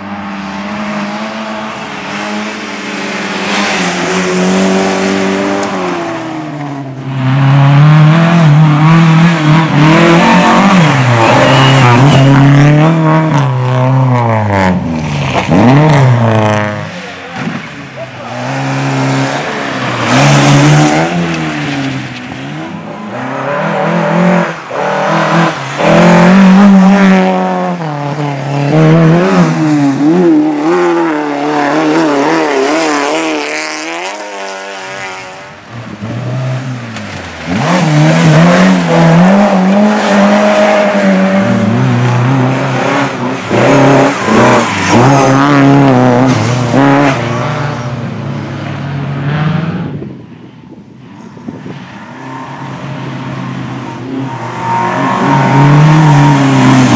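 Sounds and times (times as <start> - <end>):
rally car engine revving: 0.0 - 50.2, 51.8 - 56.9
tyre squeal: 10.3 - 12.7.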